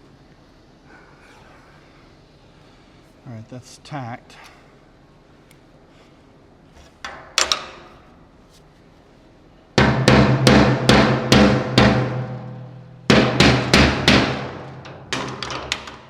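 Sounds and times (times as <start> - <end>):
hammer on thin metal tank: 9.8 - 15.6.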